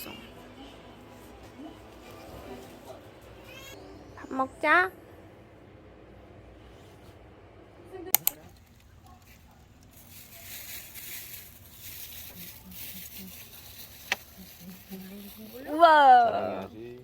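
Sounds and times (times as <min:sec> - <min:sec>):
sharp clicks: 0:08.2 - 0:08.4.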